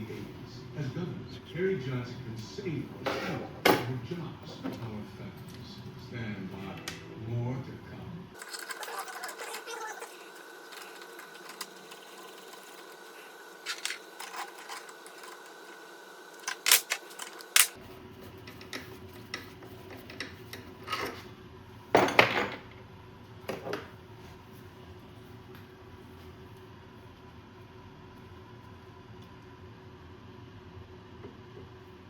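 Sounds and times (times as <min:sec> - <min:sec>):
metal tools clinking and knocking: 0:08.4 - 0:17.8.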